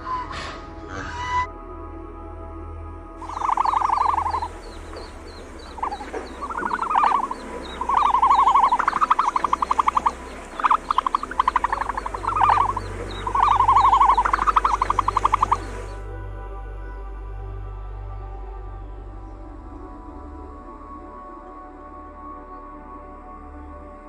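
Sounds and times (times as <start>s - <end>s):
frogs croaking: 3.2s - 16.0s.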